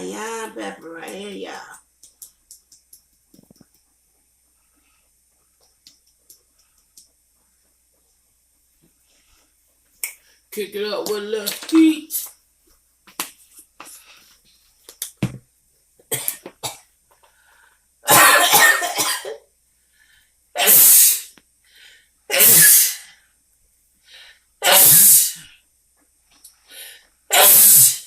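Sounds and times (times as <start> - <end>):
person coughing: 18.1 - 19.4.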